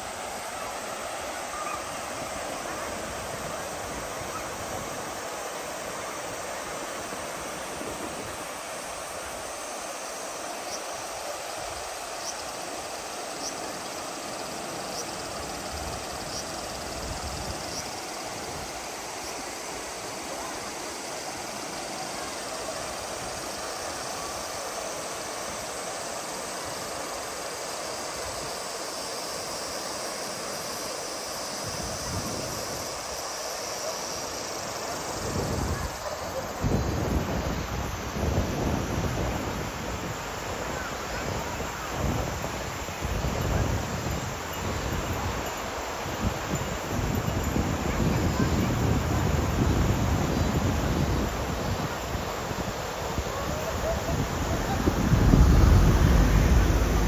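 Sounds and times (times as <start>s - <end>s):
river water rushing over rocks: 50.7s - 57.0s.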